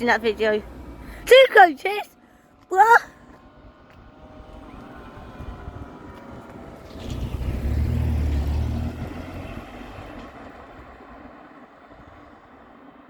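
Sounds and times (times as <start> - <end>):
heavy vehicle engine passing: 3.4 - 13.0.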